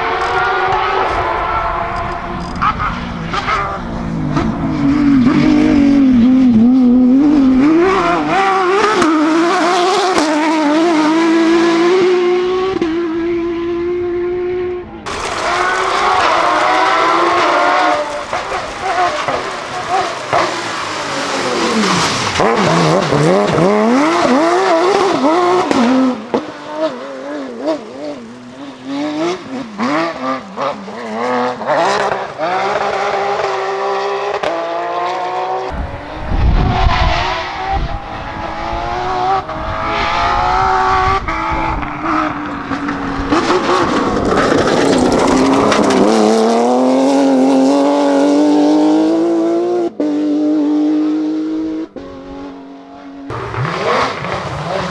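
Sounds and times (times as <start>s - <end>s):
tyre noise: 0.0s - 10.6s, 35.7s - 47.8s
race car engine revving: 0.0s - 54.9s.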